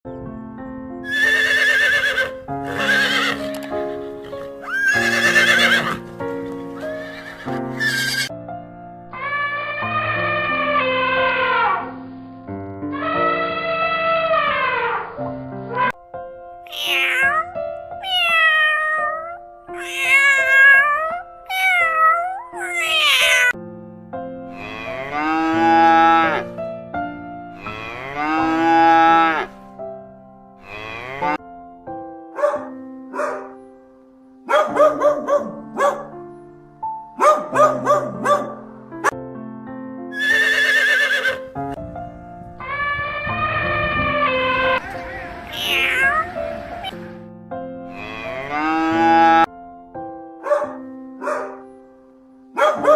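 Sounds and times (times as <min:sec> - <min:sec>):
background music: 0:00.1 - 0:52.9
horse neighing: 0:01.0 - 0:06.0, 0:06.8 - 0:08.3, 0:16.7 - 0:17.4, 0:19.8 - 0:20.6, 0:40.1 - 0:41.4, 0:44.4 - 0:47.0
cat meowing: 0:07.8 - 0:08.3, 0:16.7 - 0:23.6, 0:42.6 - 0:46.4
cow mooing: 0:24.5 - 0:26.5, 0:27.5 - 0:29.6, 0:30.6 - 0:31.4, 0:47.9 - 0:49.5.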